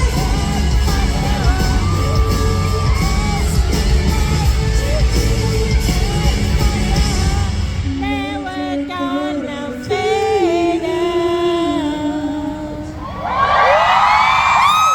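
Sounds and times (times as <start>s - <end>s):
live band music through pa: 0.0s - 11.3s.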